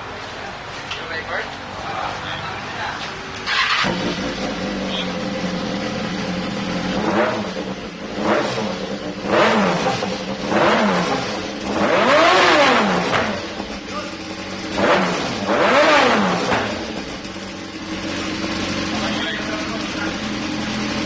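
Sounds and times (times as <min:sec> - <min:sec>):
motorcycle engine revving: 0:03.4 - 0:21.0.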